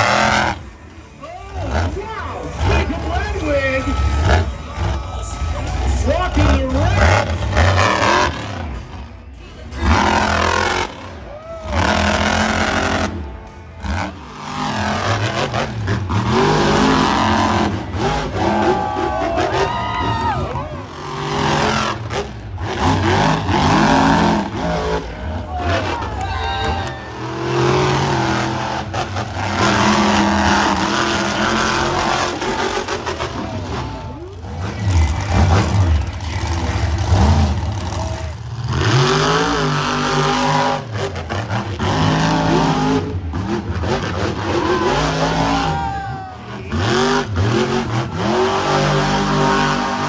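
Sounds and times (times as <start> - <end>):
monster truck engines revving: 0.0 - 50.0.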